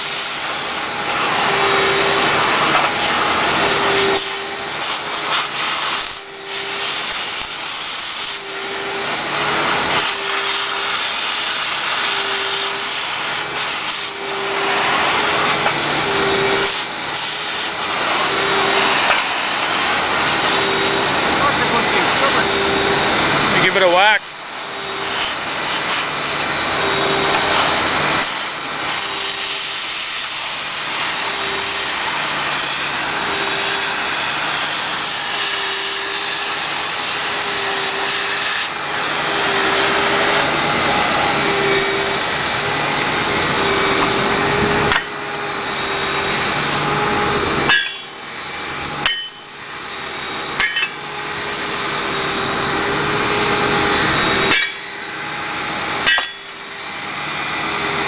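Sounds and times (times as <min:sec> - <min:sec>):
power tool rasping: 0:00.0 - 0:58.0.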